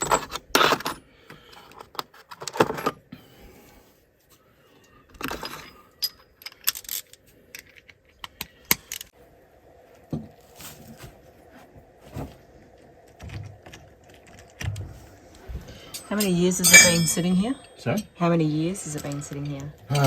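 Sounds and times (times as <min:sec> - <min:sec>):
metal hand tools clinking: 0:15.8 - 0:20.0.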